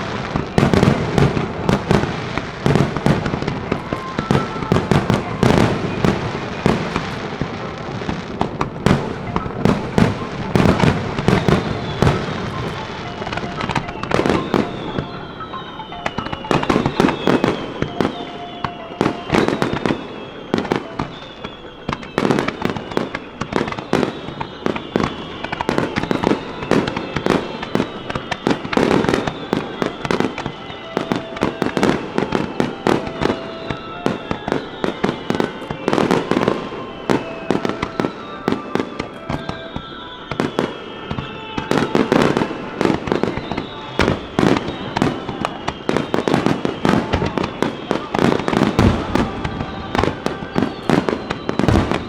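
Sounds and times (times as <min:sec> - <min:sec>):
fireworks bursting and crackling: 0:00.0 - 0:52.0
high whistles falling in pitch: 0:00.0 - 0:52.0.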